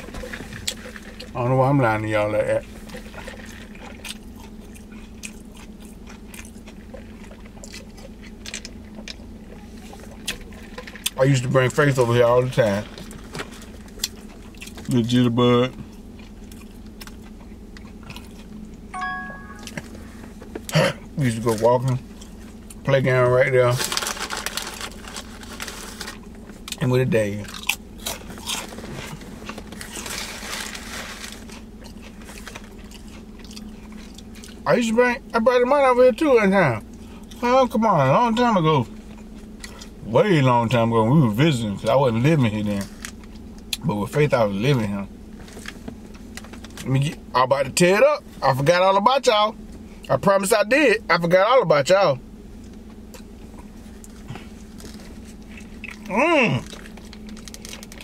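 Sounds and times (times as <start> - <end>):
person chewing sandwich: 0.0 - 1.4, 2.6 - 11.2, 12.8 - 15.0, 15.8 - 20.8, 21.5 - 22.8, 27.4 - 34.6, 38.9 - 40.0, 52.6 - 58.0
low car cabin hum: 0.0 - 58.0
chewing clicks and smacks: 3.2 - 9.3, 15.9 - 18.8, 31.5 - 34.6
crunching bread roll: 19.7 - 34.7, 52.6 - 58.0
rustling: 23.8 - 26.2, 28.6 - 31.6.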